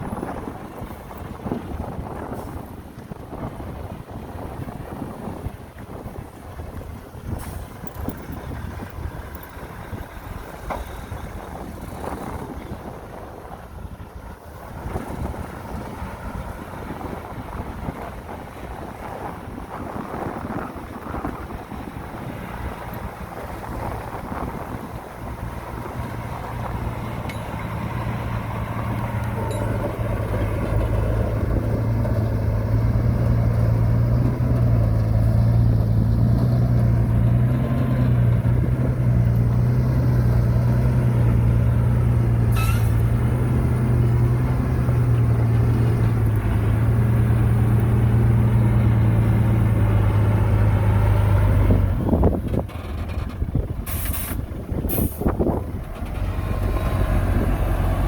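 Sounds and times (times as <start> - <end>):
heavy diesel engine drone: 0.0 - 58.0
sharp hiss: 53.9 - 55.3.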